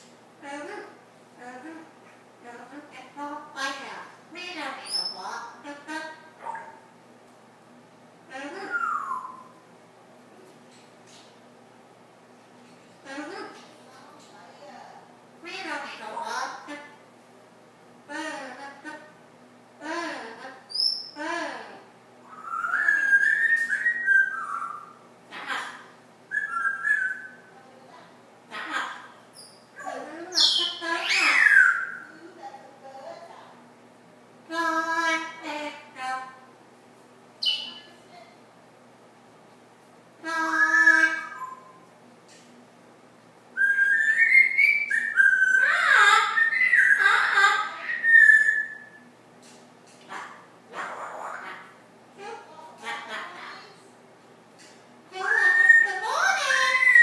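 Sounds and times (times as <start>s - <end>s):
parrot whistling: 8.6s - 9.6s, 22.2s - 25.6s, 26.3s - 27.5s, 29.4s - 32.1s, 37.4s - 38.0s, 40.4s - 41.8s, 43.6s - 49.0s, 55.2s - 57.0s
parrot harsh call: 22.2s - 27.5s, 28.5s - 32.1s, 43.6s - 49.0s, 50.1s - 51.8s, 55.2s - 57.0s.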